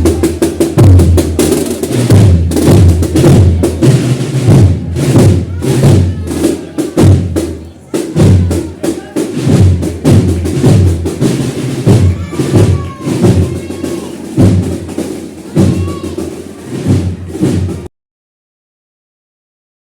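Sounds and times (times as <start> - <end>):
bass drum strokes: 0.0 - 17.9
snare drum rolls: 0.0 - 17.9.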